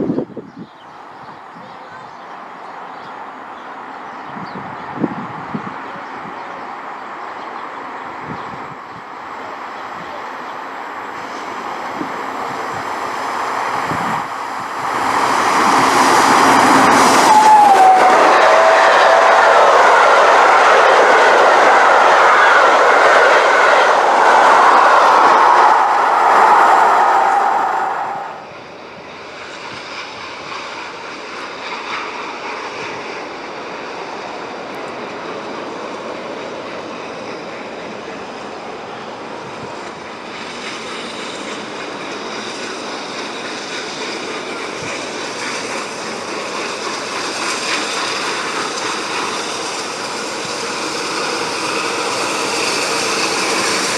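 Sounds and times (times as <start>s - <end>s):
rail rumble: 0.0s - 53.9s
train wheels clattering on rails: 39.3s - 53.9s.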